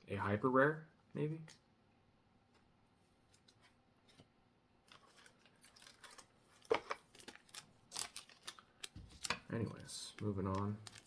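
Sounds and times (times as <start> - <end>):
cards and foil pack crinkling: 4.8 - 11.0.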